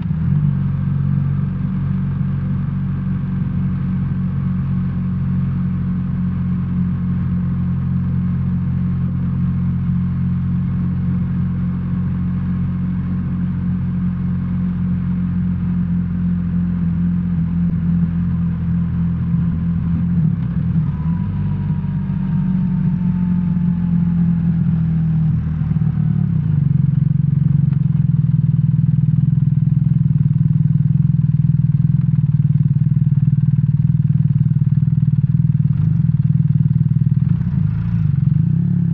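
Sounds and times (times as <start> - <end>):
motorcycle engine drone: 0.0 - 38.9.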